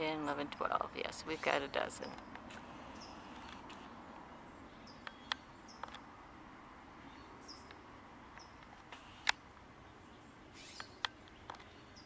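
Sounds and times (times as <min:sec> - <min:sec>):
small birds chirping: 0:00.0 - 0:06.1, 0:06.9 - 0:12.0
sharp clicks: 0:07.6 - 0:09.4.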